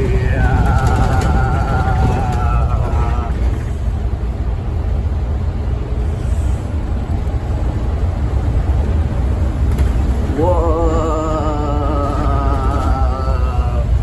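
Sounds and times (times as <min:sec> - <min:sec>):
bus engine rumble: 0:00.0 - 0:14.0
road noise: 0:00.0 - 0:14.0.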